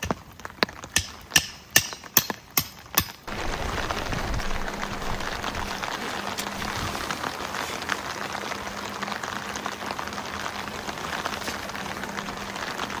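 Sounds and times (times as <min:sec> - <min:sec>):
heavy rain falling: 0:02.9 - 0:13.0.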